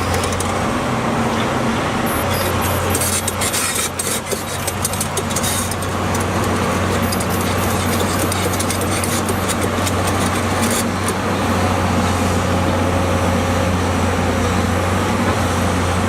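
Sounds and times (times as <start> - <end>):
excavator diesel engine running: 0.0 - 16.0
clicks and rattles: 2.8 - 11.2.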